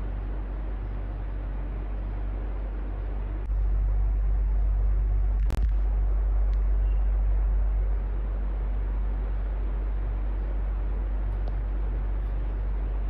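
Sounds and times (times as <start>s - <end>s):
deep low rumble: 0.0s - 13.0s
electric fan whooshing: 0.0s - 13.0s.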